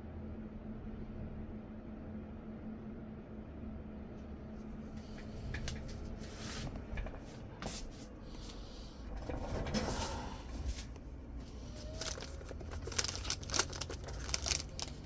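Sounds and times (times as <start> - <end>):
rustling: 5.0 - 15.0.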